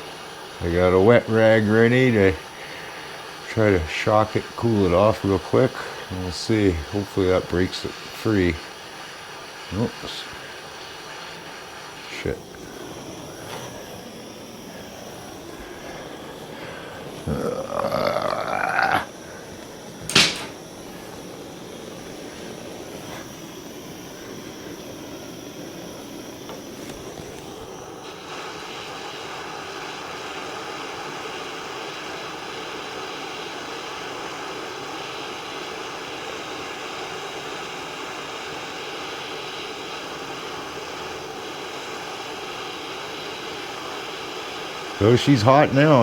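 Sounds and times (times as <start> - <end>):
torch flame hissing: 0.0 - 46.0
sharp click: 20.0 - 20.6.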